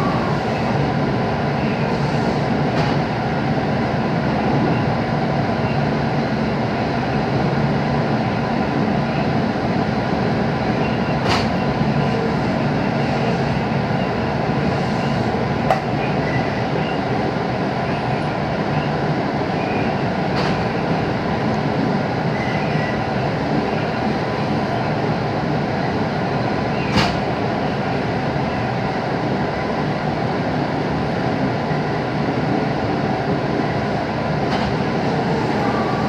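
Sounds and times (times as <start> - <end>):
electric train running: 34.5 - 36.0.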